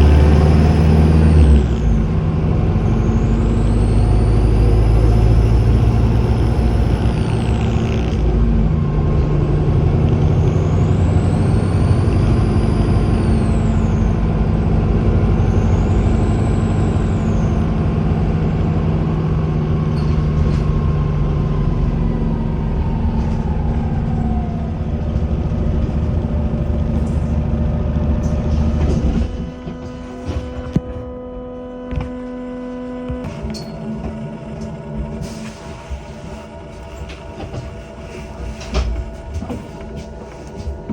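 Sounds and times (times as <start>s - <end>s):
turbo whistle: 0.0s - 8.4s, 9.8s - 17.9s
bus diesel engine running: 0.0s - 40.9s
falling whine: 0.0s - 40.9s.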